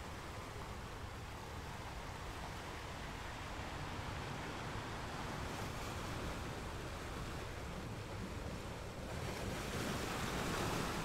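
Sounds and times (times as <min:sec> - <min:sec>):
ocean waves washing onto beach: 0:00.0 - 0:11.0.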